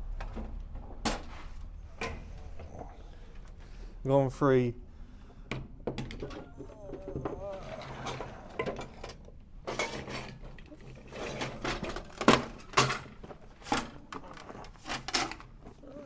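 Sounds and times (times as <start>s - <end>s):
handling knocks and clatters: 5.5s - 15.8s.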